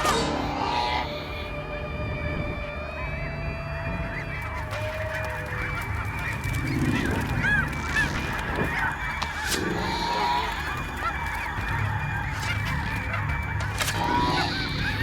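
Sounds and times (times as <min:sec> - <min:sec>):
honking and squawking animal calls: 0:04.0 - 0:15.0.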